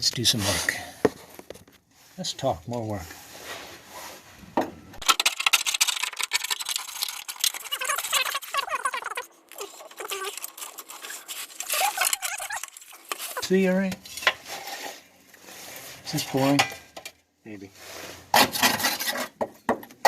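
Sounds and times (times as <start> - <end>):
hand scraper scraping metal: 9.6 - 16.4, 17.9 - 19.4.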